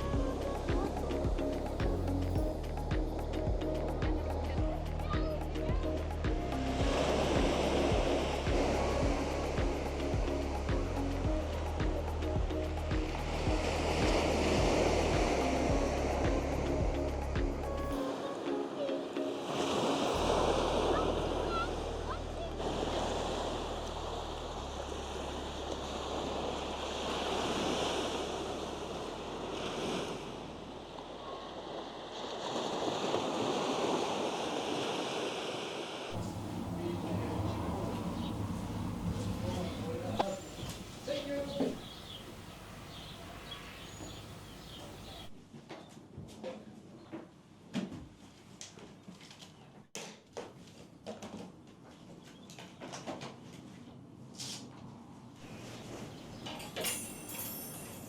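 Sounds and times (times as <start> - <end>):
waves breaking on shore: 0.0 - 45.4.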